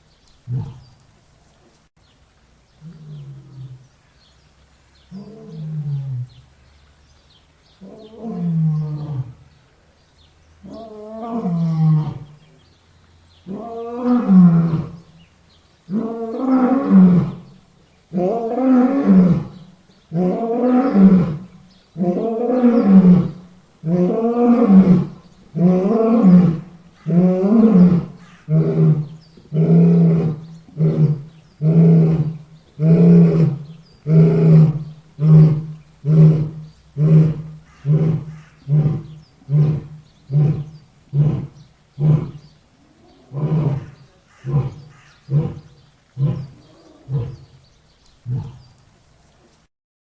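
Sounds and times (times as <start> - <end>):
lion grunting calls: 18.1 - 47.6, 48.2 - 48.7
lion roaring: 18.1 - 47.6, 48.2 - 48.7.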